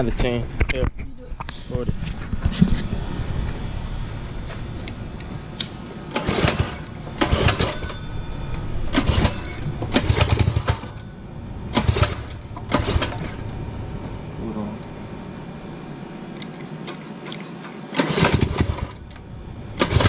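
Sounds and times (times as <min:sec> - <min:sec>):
engine being pull-started: 0:06.1 - 0:08.0, 0:08.8 - 0:11.0, 0:11.7 - 0:13.5, 0:17.6 - 0:20.0.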